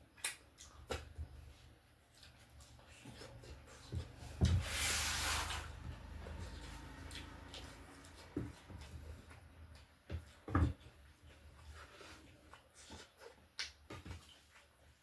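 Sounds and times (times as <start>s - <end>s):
chewing and lip smacks: 0.1s - 3.9s, 6.4s - 10.0s, 12.5s - 14.7s.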